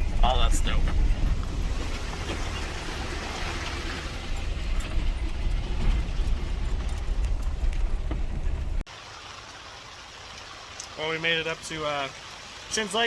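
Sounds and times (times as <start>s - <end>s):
engine and tyre rumble: 0.0s - 8.9s.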